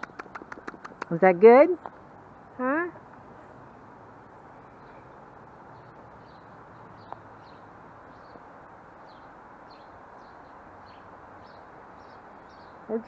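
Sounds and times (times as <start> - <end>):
small bird chirping: 0.0 - 2.0
steady background hiss: 0.4 - 13.0.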